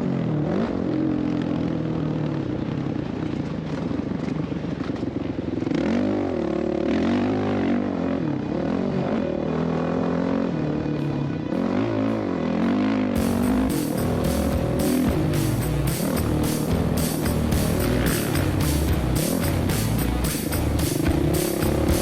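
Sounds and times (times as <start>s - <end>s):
dirt bike engine revving: 5.6s - 22.0s.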